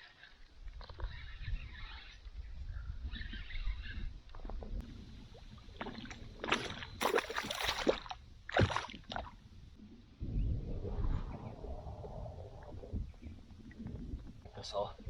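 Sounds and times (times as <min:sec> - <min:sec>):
fish splashing in water: 0:05.8 - 0:09.3.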